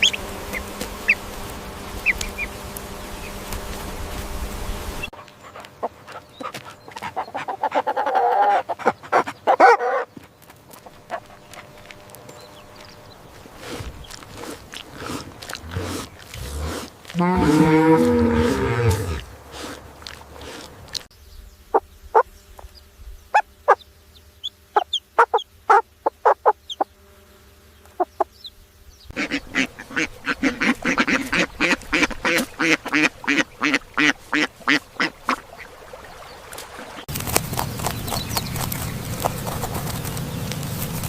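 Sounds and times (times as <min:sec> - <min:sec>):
fowl calling: 0:05.0 - 0:10.2, 0:24.7 - 0:26.9, 0:29.1 - 0:35.8
fowl clucking rapidly: 0:05.4 - 0:10.1, 0:24.8 - 0:26.6, 0:29.1 - 0:35.4.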